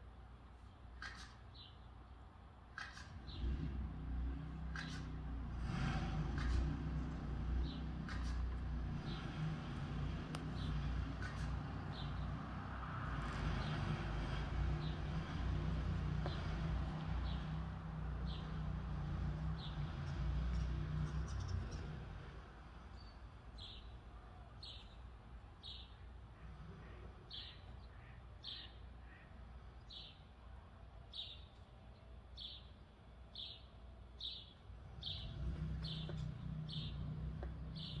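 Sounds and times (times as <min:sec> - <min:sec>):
passing traffic rumble: 0:00.1 - 0:38.0
songbird high chirp: 0:22.9 - 0:26.1, 0:27.3 - 0:30.3, 0:31.1 - 0:38.0.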